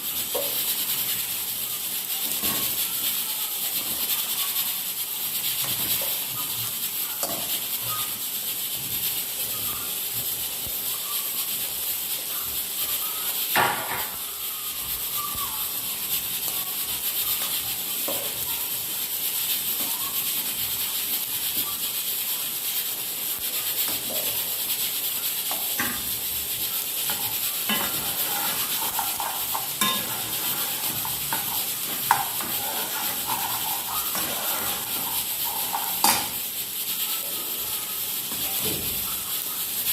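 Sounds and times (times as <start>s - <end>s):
food sizzling in a pan: 0.0s - 39.9s
utensil knocking and scraping: 27.0s - 36.4s.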